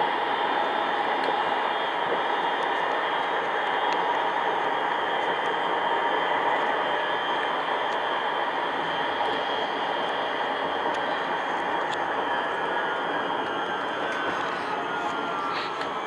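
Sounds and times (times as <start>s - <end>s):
faint hum: 0.0s - 16.0s
tram rolling: 0.0s - 16.0s.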